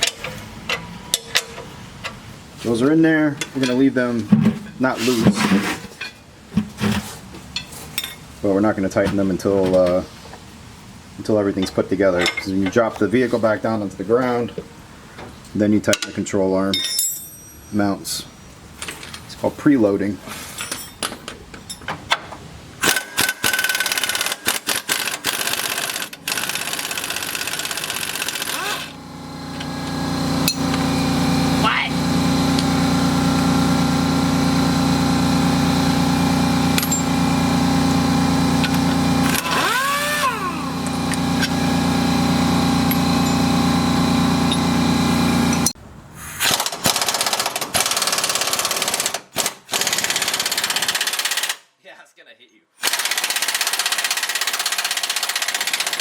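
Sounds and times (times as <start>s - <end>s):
pneumatic impact wrench rattling: 22.8s - 51.6s, 52.8s - 56.0s
machine hum: 26.2s - 46.7s.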